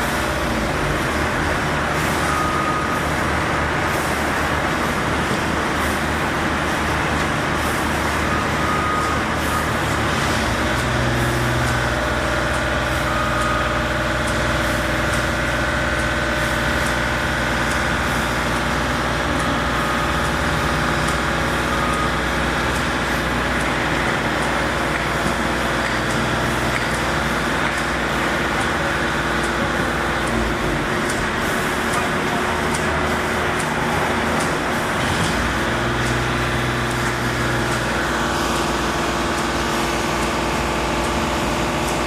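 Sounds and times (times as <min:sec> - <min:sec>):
large engine rumbling: 0:00.0 - 0:42.0.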